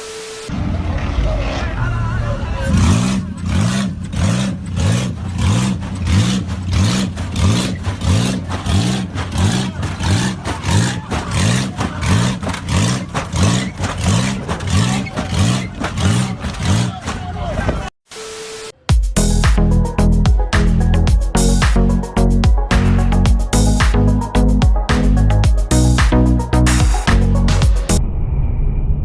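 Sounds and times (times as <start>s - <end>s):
vehicle engine revving: 0.5s - 17.9s.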